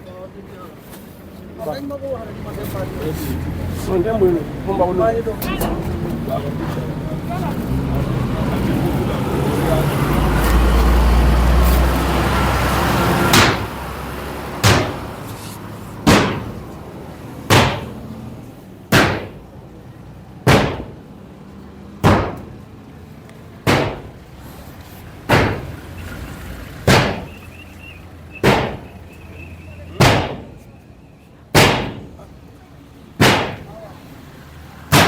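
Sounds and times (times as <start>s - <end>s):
vehicle passing: 0.1s - 31.1s, 31.7s - 35.0s
sharp knocks: 13.3s - 13.8s, 14.6s - 15.2s, 16.0s - 16.6s, 17.5s - 18.1s, 18.9s - 19.4s, 20.5s - 21.0s, 22.0s - 22.6s, 23.7s - 24.2s, 25.3s - 25.8s, 26.9s - 27.4s, 28.4s - 29.0s, 30.0s - 30.6s, 31.6s - 32.2s, 33.2s - 33.7s.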